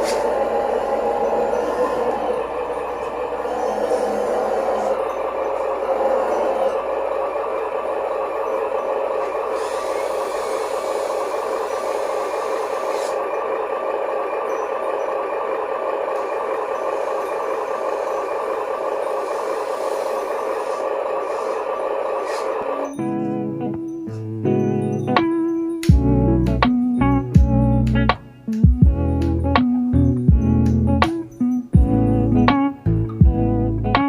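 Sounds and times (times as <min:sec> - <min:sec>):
toy truck electric motor whine: 0:00.0 - 0:24.0
keyboard music: 0:00.0 - 0:34.0.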